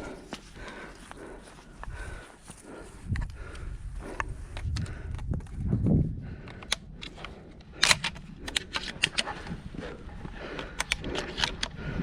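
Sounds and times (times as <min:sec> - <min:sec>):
sharp clicks and rattles: 0:06.2 - 0:12.0.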